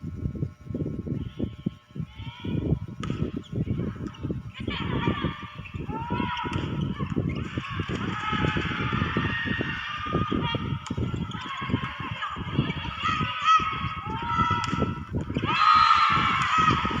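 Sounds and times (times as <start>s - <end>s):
crowd cheering and calling: 5.8s - 17.0s.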